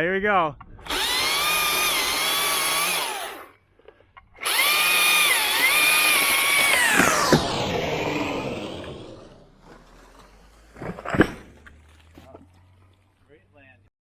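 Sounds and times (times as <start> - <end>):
chainsaw cutting at full throttle: 0.8 - 3.5, 4.4 - 9.3.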